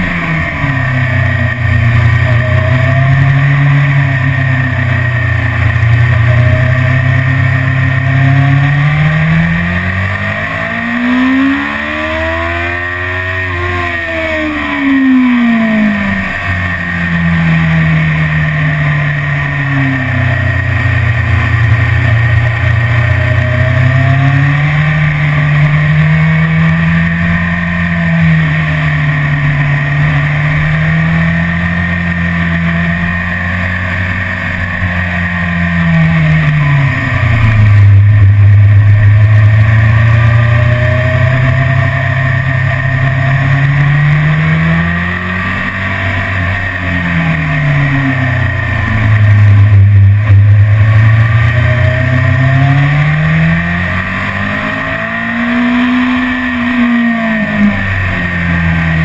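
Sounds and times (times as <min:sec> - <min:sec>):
motorcycle engine running hard: 0:00.0 - 0:59.0.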